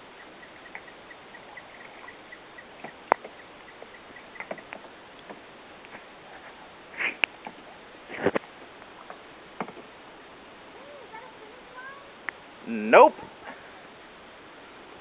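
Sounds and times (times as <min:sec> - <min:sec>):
canoe paddle knocks and clicks: 0:02.8 - 0:05.4, 0:07.2 - 0:09.9.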